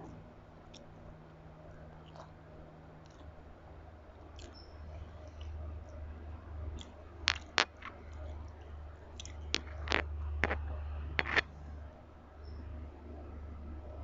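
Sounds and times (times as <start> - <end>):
steady low hum: 0.0 - 14.0
chewing with wet smacks: 2.0 - 3.4, 4.1 - 6.1.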